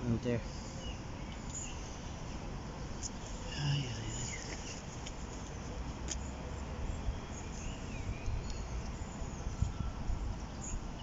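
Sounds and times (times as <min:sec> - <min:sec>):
bird chirps: 0:00.6 - 0:02.2, 0:06.9 - 0:11.0.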